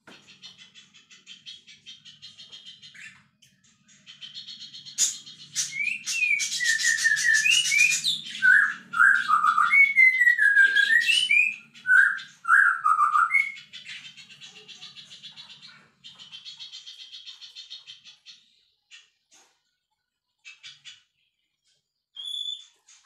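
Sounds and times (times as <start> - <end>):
buzzy chattering bird trills: 3.8 - 19.2
songbird whistling: 5.0 - 13.8, 22.2 - 22.8.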